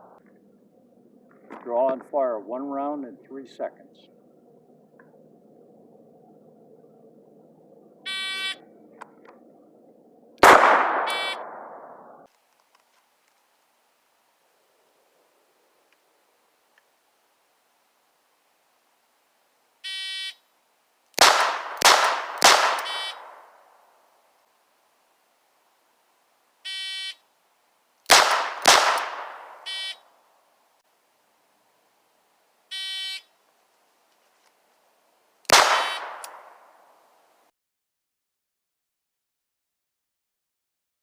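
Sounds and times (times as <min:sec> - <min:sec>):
revolver shots: 0:10.4 - 0:12.3
shot-timer beep: 0:11.0 - 0:11.5.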